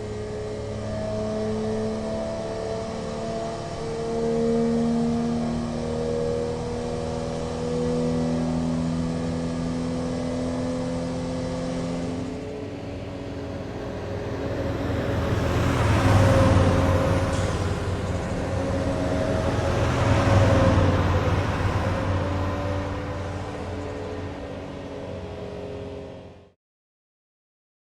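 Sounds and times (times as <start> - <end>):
car engine at raised revs: 9.2 - 26.0
rising rushing noise: 13.6 - 24.9.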